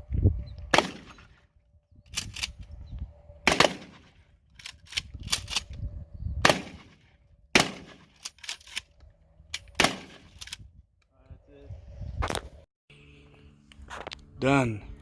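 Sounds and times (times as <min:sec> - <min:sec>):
shotgun shots with echo: 0:00.7 - 0:01.2, 0:03.4 - 0:04.1, 0:06.4 - 0:08.1, 0:09.8 - 0:10.3.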